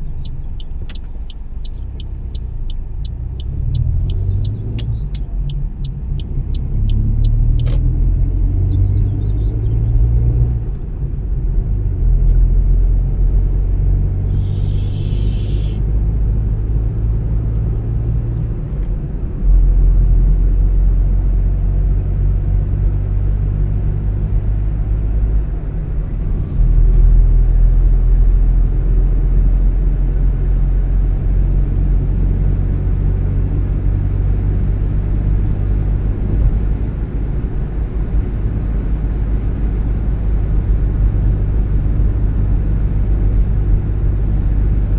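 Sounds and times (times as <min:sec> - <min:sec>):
car engine and road rumble: 0:00.0 - 0:44.9
brief hiss: 0:14.3 - 0:15.8.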